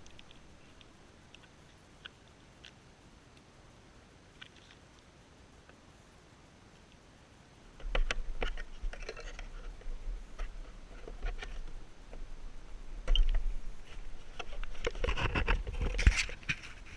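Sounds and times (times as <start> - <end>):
wind rumbling on microphone: 7.8 - 16.9.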